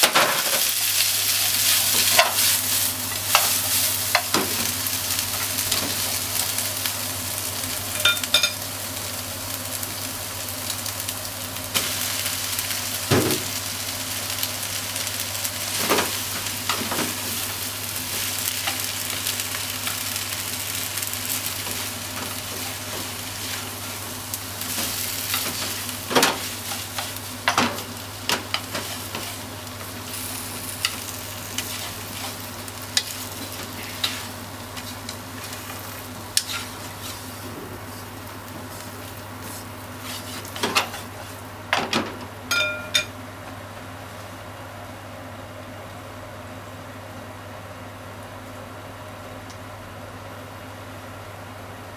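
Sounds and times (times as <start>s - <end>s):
food sizzling in frying pan: 0.0s - 44.4s
chopsticks tapping a pan: 42.5s - 43.1s.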